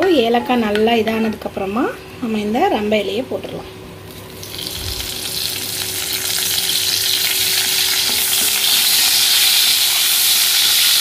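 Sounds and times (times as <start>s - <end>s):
leaves sizzling in hot oil: 4.1s - 11.0s.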